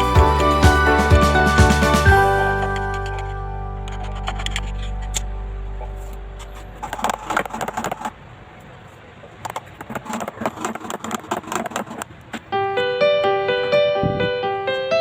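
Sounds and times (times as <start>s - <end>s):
background music: 0.0s - 6.5s.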